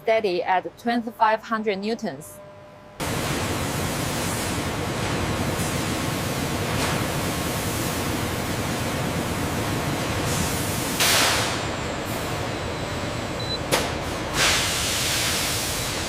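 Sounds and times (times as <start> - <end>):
factory machine hissing: 3.0 - 16.0.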